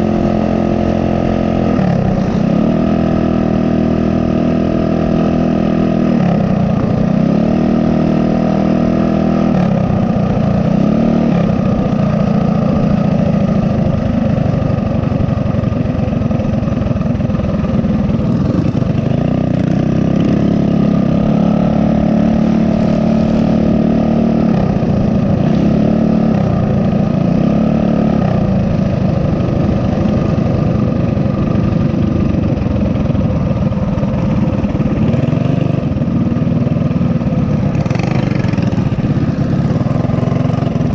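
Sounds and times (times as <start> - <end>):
small motorbike engine revving: 18.1 - 36.3, 37.0 - 40.9.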